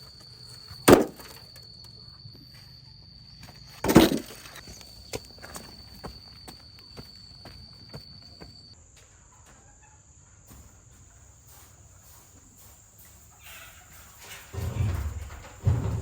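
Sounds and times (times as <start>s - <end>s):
high-pitched insect drone: 0.0s - 8.8s.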